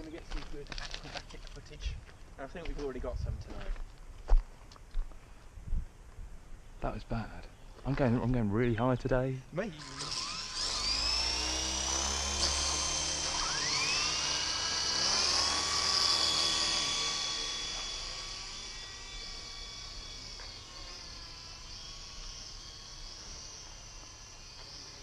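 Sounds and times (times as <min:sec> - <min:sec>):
toy helicopter motors whining: 0:00.0 - 0:01.9, 0:09.6 - 0:25.0.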